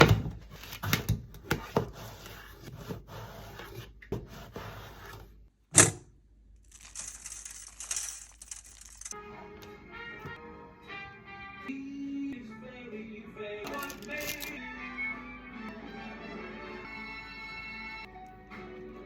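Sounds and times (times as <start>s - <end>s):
utensils clicking and knocking: 6.7s - 9.2s.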